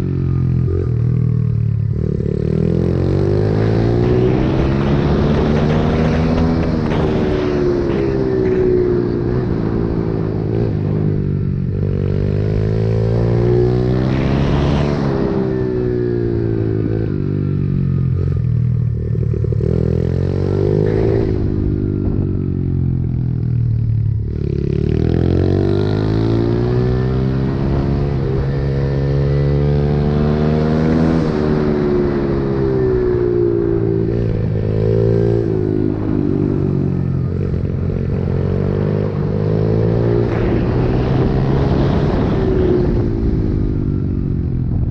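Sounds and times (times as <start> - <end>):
pit bike engine revving: 2.0 - 10.9.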